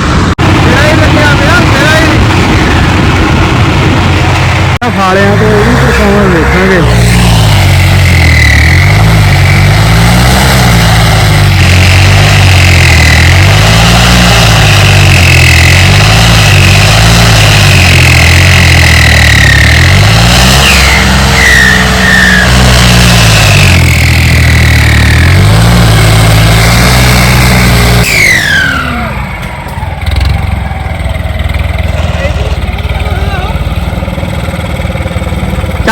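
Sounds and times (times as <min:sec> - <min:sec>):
tractor diesel engine under load: 0:00.0 - 0:35.9
turbo whistle: 0:20.6 - 0:22.7, 0:28.0 - 0:29.2.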